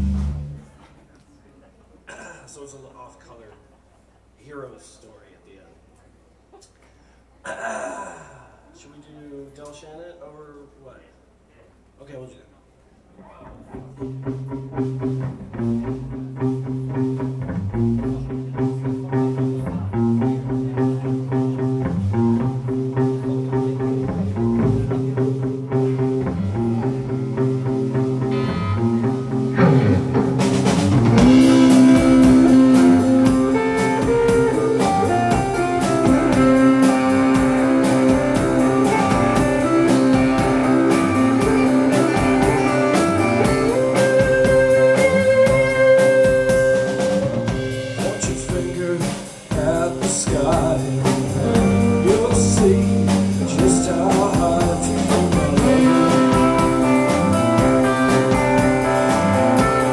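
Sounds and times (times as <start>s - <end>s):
rock band playing: 0.0s - 0.9s, 13.6s - 59.9s
drums: 0.0s - 5.1s, 13.1s - 59.9s
guitar chord pattern: 14.1s - 47.9s, 50.8s - 59.9s.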